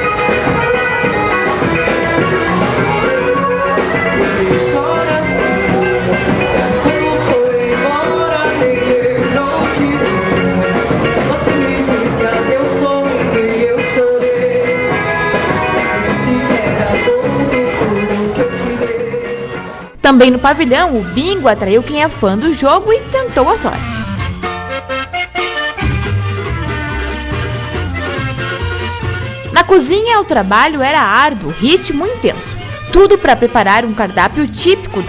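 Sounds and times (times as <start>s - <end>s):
percussion beat: 0.0s - 12.5s
accordion dance music: 0.0s - 35.0s.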